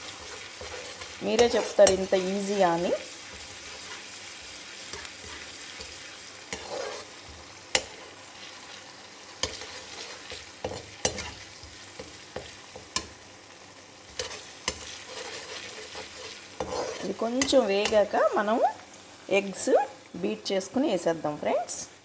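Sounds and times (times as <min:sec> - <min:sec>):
spatula scraping and tapping pan: 0:00.0 - 0:02.2, 0:04.9 - 0:08.2, 0:09.4 - 0:13.2, 0:14.1 - 0:18.1
onions sizzling in oil: 0:00.0 - 0:22.0.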